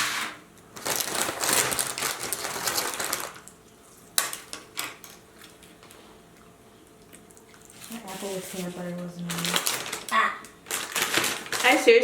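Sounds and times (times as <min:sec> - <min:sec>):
paper bag rustling: 0:00.8 - 0:03.4, 0:07.9 - 0:12.0.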